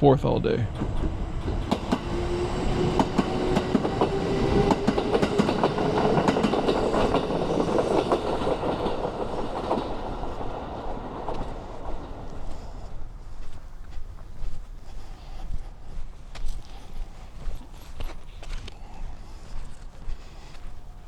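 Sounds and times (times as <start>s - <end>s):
train wheels clacking over joints: 0.6s - 15.8s, 16.5s - 21.0s
electric train motor whine: 0.8s - 12.5s.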